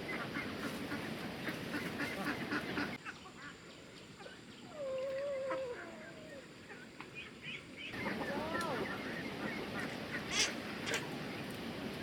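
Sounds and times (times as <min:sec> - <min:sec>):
ducks quacking: 0:00.0 - 0:03.5, 0:07.9 - 0:11.1.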